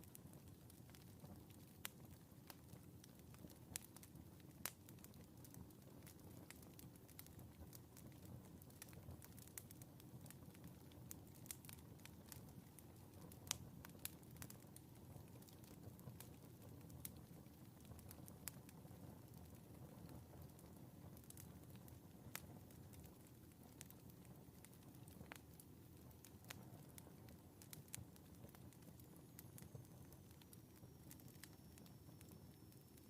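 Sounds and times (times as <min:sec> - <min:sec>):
wood fire crackling and popping: 0:00.0 - 0:33.0.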